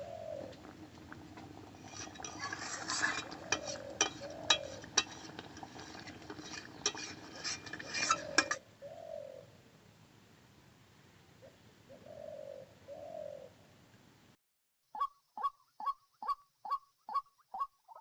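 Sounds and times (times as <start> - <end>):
bird cooing: 0.0 - 0.9, 3.4 - 4.9, 8.1 - 9.6, 11.4 - 13.6
metal utensil clinking on pot: 0.9 - 8.6.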